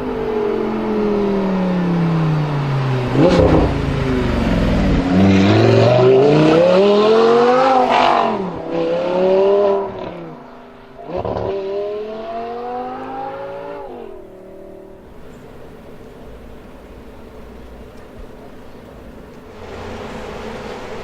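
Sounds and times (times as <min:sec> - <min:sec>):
car engine accelerating hard: 0:00.0 - 0:15.1, 0:19.5 - 0:21.0.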